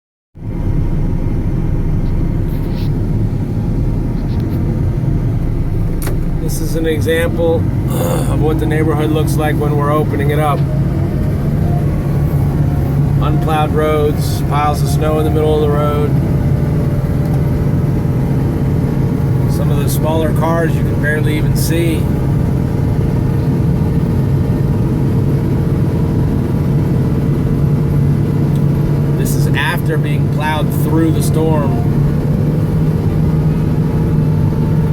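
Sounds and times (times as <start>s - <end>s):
truck engine low rumble: 0.4s - 34.9s.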